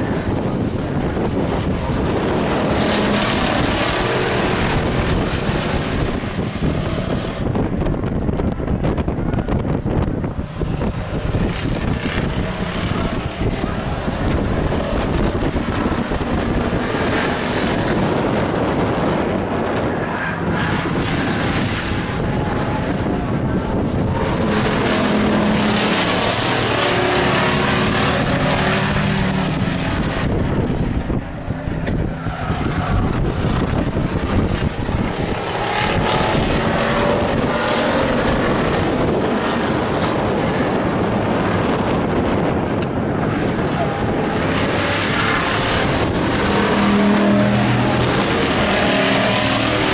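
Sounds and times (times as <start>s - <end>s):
race truck engines droning: 0.0s - 49.9s.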